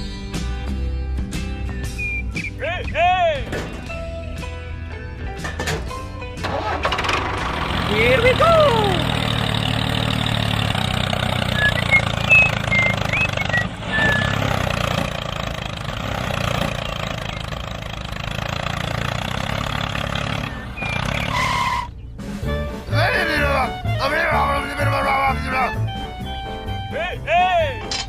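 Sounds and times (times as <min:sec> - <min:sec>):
small engine chugging: 0:06.5 - 0:21.4.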